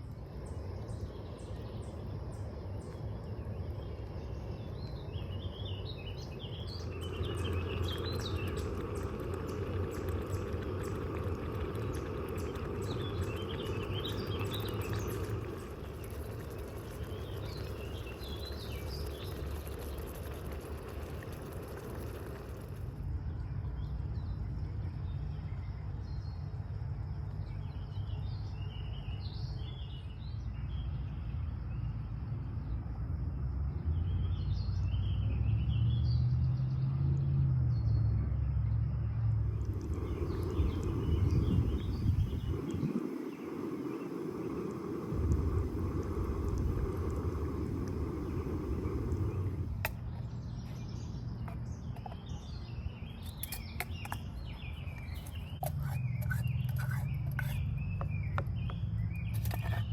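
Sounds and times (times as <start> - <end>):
small birds chirping: 0.0 - 22.9, 39.1 - 59.9
low outdoor rumble: 0.0 - 29.0, 29.7 - 59.9.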